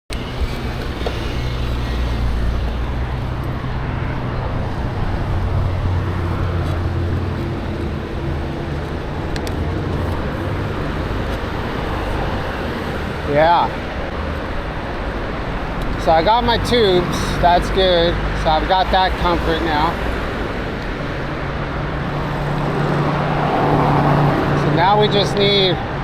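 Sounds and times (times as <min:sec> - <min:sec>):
rushing road noise: 0:00.1 - 0:26.0.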